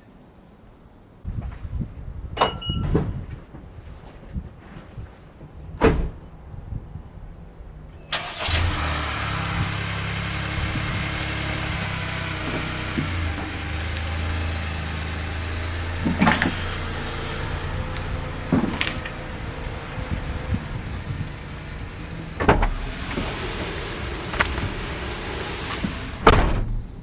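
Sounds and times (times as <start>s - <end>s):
car engine starting and idling: 7.8s - 27.0s
short knocks: 8.6s - 26.9s.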